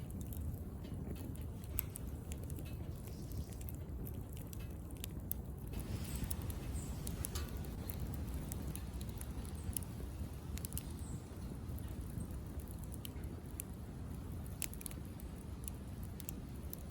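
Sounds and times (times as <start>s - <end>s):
fire crackling and popping: 0.0s - 16.9s
low rush of flame: 0.0s - 16.9s.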